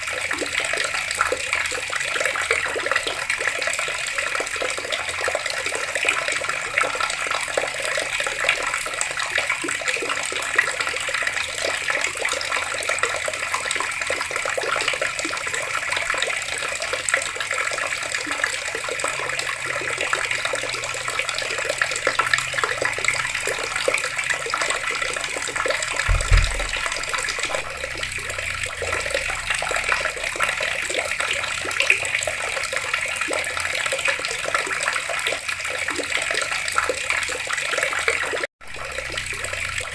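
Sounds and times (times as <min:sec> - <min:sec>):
water running from taps: 0:00.0 - 0:39.9
low thump: 0:26.0 - 0:28.9.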